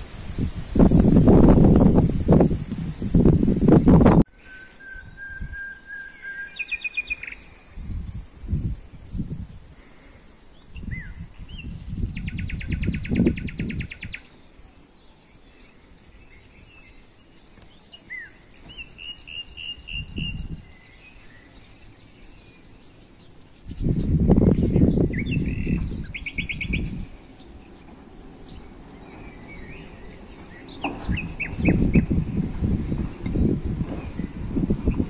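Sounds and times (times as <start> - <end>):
low rumbles on microphone: 0.0 - 4.3, 7.6 - 9.8, 10.7 - 14.2, 19.8 - 20.8, 23.6 - 35.0
songbirds calling and singing: 0.9 - 35.0.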